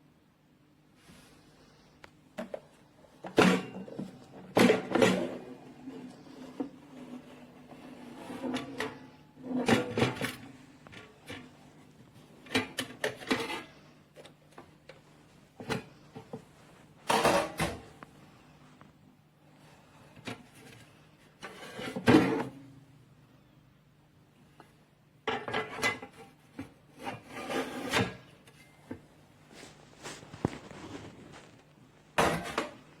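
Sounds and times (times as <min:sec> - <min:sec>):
faint steady hum: 0:00.0 - 0:33.0
handling knocks and scrapes: 0:26.5 - 0:33.0.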